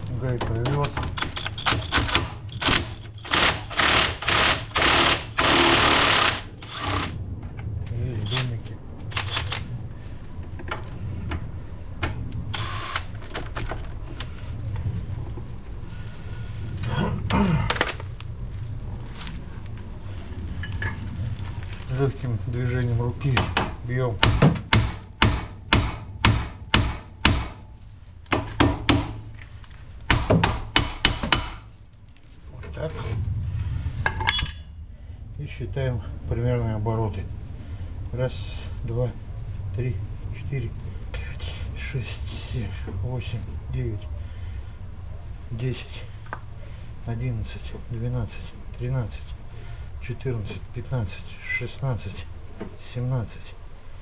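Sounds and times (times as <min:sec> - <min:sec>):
power wrench bursts: 0:01.5 - 0:07.2, 0:12.5 - 0:13.1.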